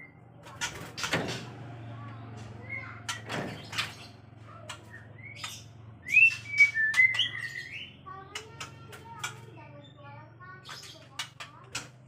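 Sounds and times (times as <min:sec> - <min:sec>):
bird calling with clicks and whistles: 0:02.6 - 0:10.0.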